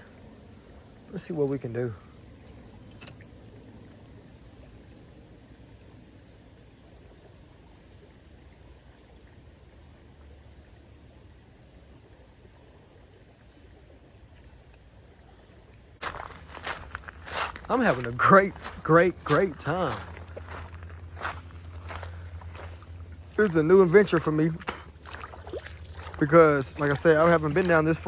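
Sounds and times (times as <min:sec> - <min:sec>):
insects trilling: 0:00.0 - 0:28.0
faint click: 0:02.7 - 0:03.4.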